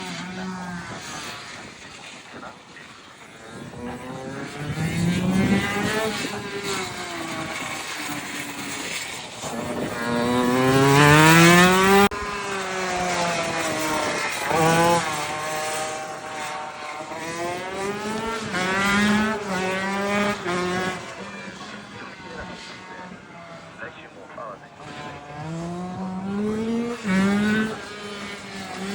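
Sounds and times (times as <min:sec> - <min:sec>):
two-stroke motorbike engine revving: 0:00.0 - 0:02.5, 0:03.4 - 0:23.6, 0:24.7 - 0:28.9.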